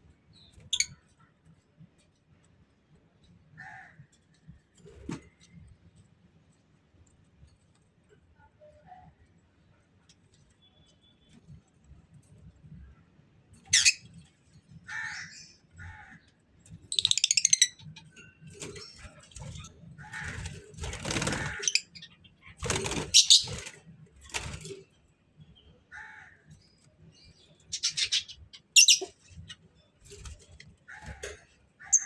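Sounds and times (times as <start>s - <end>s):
bird rattling call: 20.1s - 21.9s, 22.8s - 23.5s
wings flapping: 20.2s - 21.8s, 22.6s - 24.8s
birds calling sharply: 20.2s - 23.6s, 27.7s - 29.2s.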